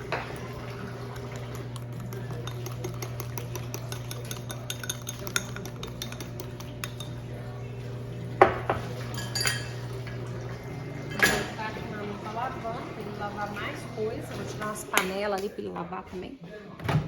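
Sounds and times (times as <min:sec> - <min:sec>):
spoon stirring in a bowl: 0:00.0 - 0:10.4
kitchenware clicks: 0:08.4 - 0:09.9, 0:11.0 - 0:11.6, 0:14.4 - 0:15.5.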